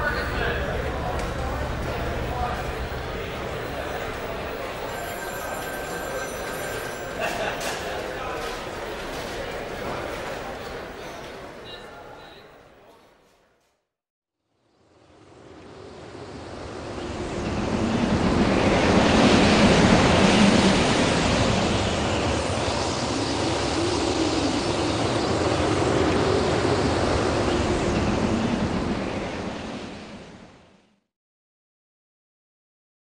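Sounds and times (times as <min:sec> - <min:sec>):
steady rushing noise: 0:14.7 - 0:31.0.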